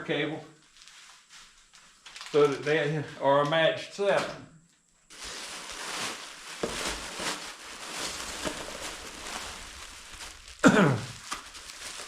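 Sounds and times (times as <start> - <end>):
packaging rustling: 0.6 - 2.5, 5.1 - 12.0.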